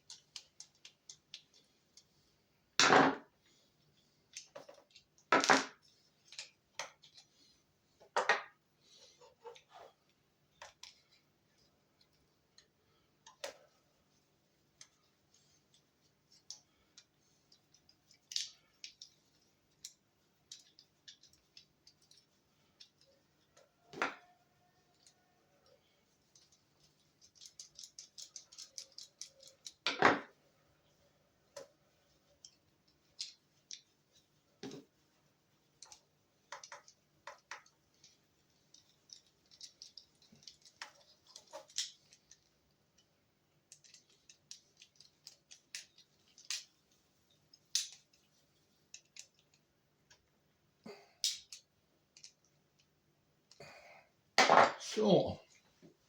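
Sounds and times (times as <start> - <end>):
small clicks and taps on parts: 0.0 - 2.2, 4.3 - 7.3, 10.5 - 13.7, 14.6 - 24.3, 24.9 - 30.4, 31.5 - 34.9, 35.6 - 50.4, 51.2 - 53.6.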